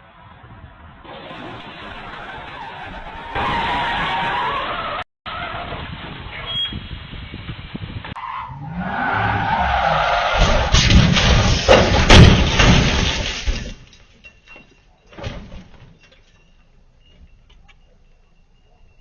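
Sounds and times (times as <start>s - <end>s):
car tyres skidding: 0.1s - 6.9s, 8.1s - 13.4s
loud crashing impacts: 9.8s - 13.9s
thud: 10.3s - 13.9s.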